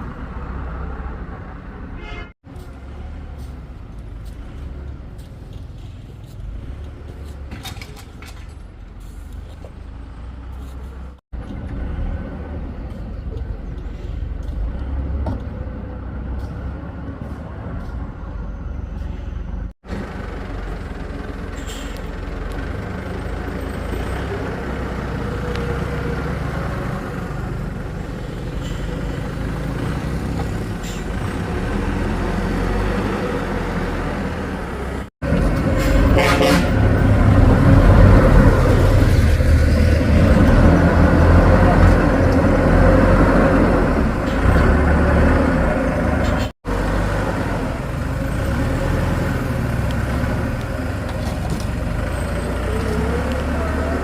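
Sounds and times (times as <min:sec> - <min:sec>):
diesel engine running: 0:12.3 - 0:54.0.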